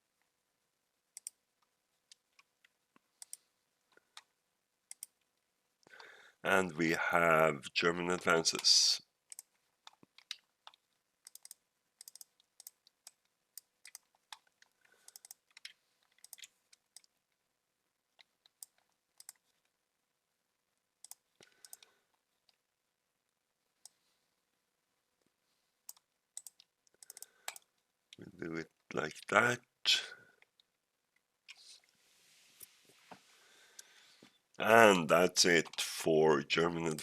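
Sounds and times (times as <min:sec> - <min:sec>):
computer mouse and keyboard clicks: 0:04.9 - 0:05.2, 0:09.3 - 0:17.2, 0:18.2 - 0:19.6, 0:21.0 - 0:22.6, 0:25.9 - 0:27.7.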